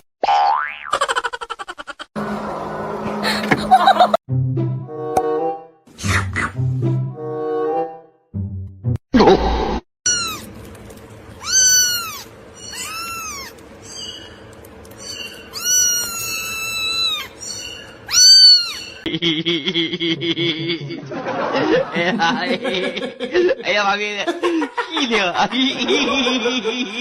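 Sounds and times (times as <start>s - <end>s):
cat meowing: 10.1s - 10.5s, 11.4s - 14.2s, 15.0s - 19.0s.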